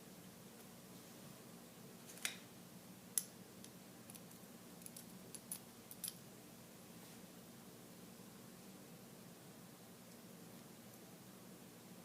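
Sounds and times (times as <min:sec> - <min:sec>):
light clicks of small metal parts: 0:03.2 - 0:06.2.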